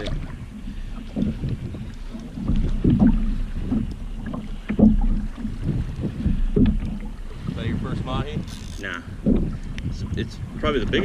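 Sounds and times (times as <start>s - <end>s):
water splashing against kayak: 0.0s - 11.0s
wind rumbling on microphone: 0.0s - 11.0s.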